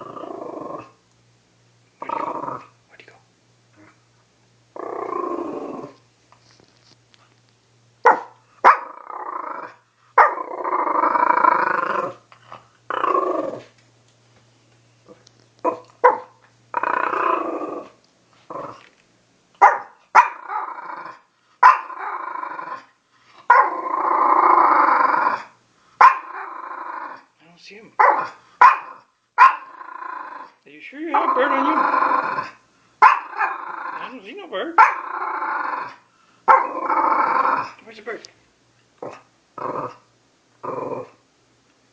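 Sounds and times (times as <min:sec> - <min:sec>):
dog growling: 0:00.0 - 0:01.0, 0:02.0 - 0:02.8, 0:04.7 - 0:06.0, 0:08.7 - 0:13.8, 0:16.7 - 0:18.9, 0:20.2 - 0:27.3, 0:28.0 - 0:37.8, 0:39.0 - 0:41.2.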